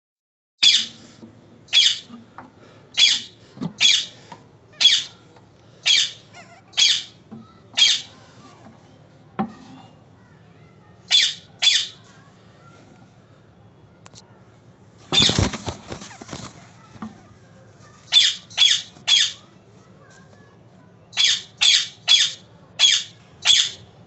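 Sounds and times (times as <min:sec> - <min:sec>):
parakeet squawking: 0:00.6 - 0:01.0, 0:01.7 - 0:02.1, 0:03.0 - 0:04.1, 0:04.7 - 0:05.2, 0:05.8 - 0:07.2, 0:07.8 - 0:08.1, 0:11.1 - 0:12.0, 0:15.2 - 0:16.3, 0:18.1 - 0:19.4, 0:21.2 - 0:23.9.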